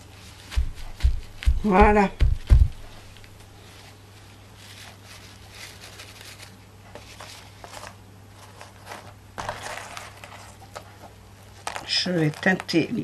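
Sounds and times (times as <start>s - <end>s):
steady low hum: 0.0s - 7.0s
faint rustling and handling: 0.0s - 13.0s.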